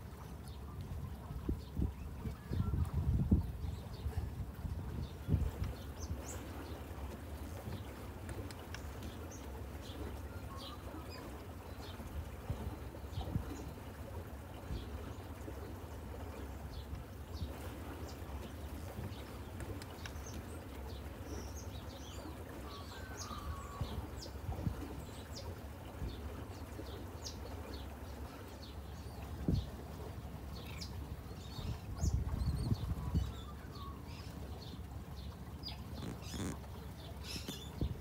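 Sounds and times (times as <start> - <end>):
small birds chirping: 30.5 - 38.0.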